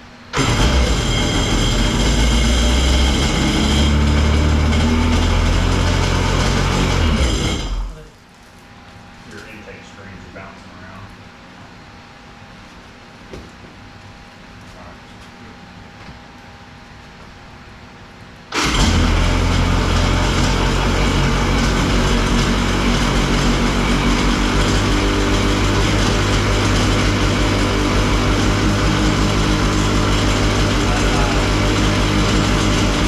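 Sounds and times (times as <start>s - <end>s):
jet ski engine running: 0.4s - 7.8s, 18.6s - 33.0s.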